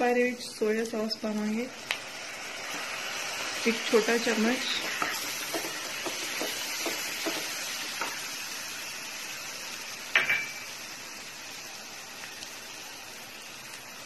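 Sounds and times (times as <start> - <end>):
onions sizzling in a pan: 0.0 - 14.0
spatula scraping a pan: 4.6 - 8.2
spatula knocking against pan: 5.0 - 8.2.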